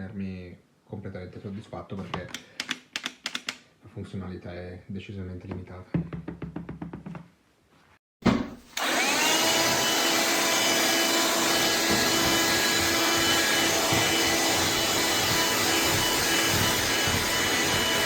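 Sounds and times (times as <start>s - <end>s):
handheld vacuum motor whining: 8.8s - 18.0s.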